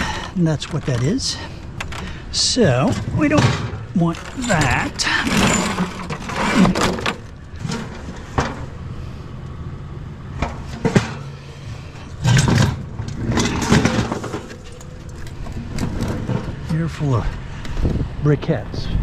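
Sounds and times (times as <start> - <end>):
metal and plastic items clattering: 0.0 - 2.2, 2.8 - 8.7, 10.4 - 16.8
low engine hum: 7.0 - 19.0.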